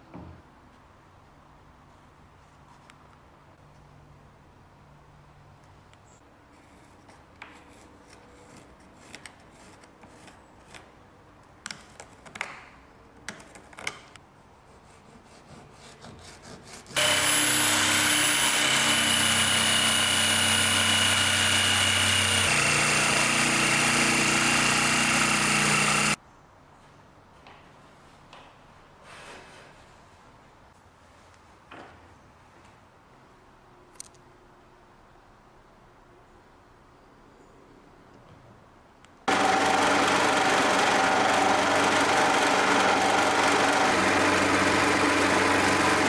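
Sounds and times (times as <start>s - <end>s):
power tool whining: 17.0s - 26.2s, 39.3s - 46.0s.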